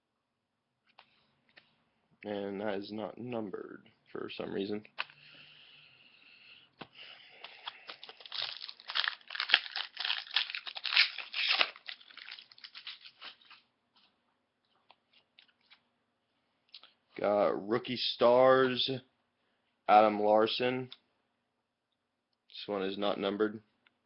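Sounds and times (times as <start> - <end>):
foil wrapper tearing and crinkling: 7.4 - 13.6.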